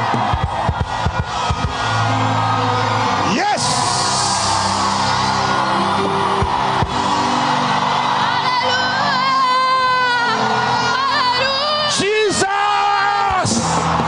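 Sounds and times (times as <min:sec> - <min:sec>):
sustained keyboard chords: 0:00.8 - 0:11.8.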